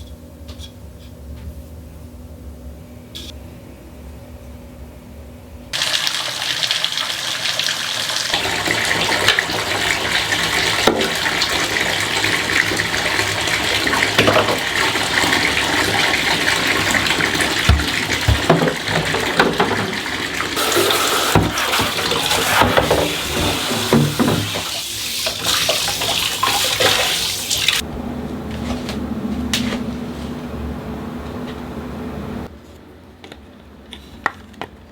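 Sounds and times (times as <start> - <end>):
tap water running: 5.8 - 27.8.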